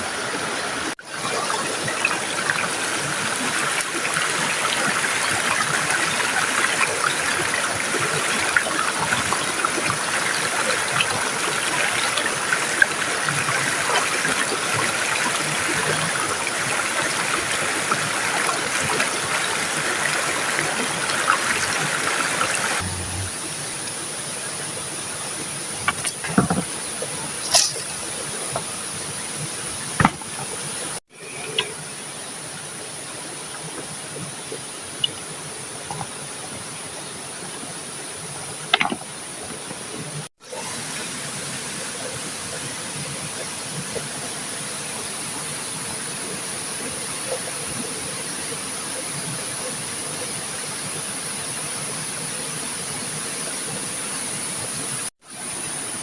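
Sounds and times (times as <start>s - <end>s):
high-pitched whine: 22.8s - 23.8s.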